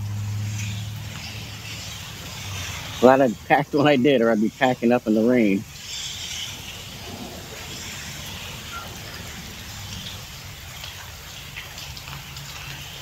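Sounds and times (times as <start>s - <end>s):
steady rain falling: 0.0s - 13.0s
low rumble: 6.3s - 11.0s.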